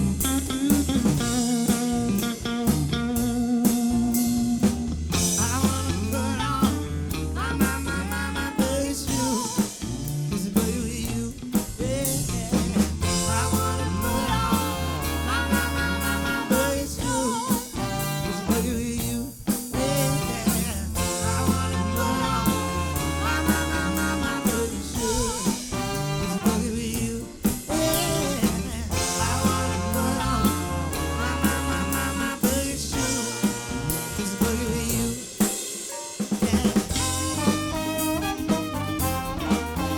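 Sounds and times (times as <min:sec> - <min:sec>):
bass line: 0:00.0 - 0:35.5, 0:36.4 - 0:39.9
drum kit beat: 0:00.0 - 0:39.9
live band music: 0:00.0 - 0:39.9.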